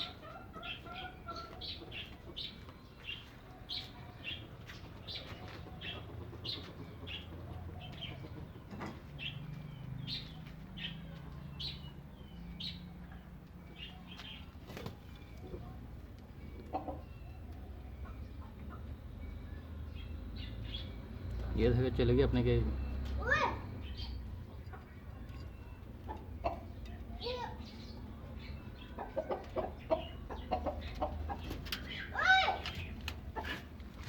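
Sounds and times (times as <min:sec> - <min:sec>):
hen clucking: 0:00.0 - 0:02.5, 0:16.4 - 0:18.9, 0:24.5 - 0:27.1, 0:28.8 - 0:32.2
chicks peeping: 0:00.0 - 0:19.2, 0:23.8 - 0:33.8.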